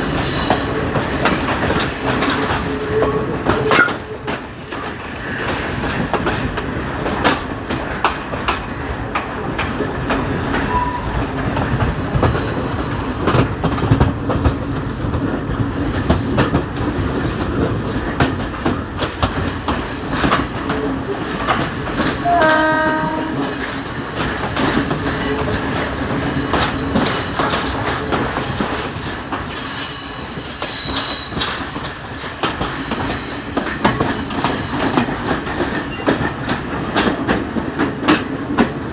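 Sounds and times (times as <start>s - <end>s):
train wheels clattering: 0.0s - 38.9s
train horn: 22.2s - 24.0s.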